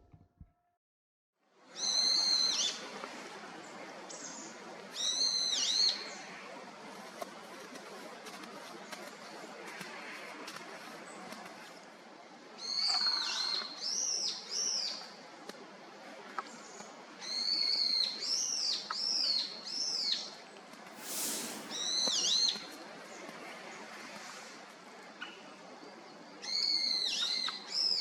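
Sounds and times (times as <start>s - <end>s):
songbird whistled calls: 21.0s - 22.6s.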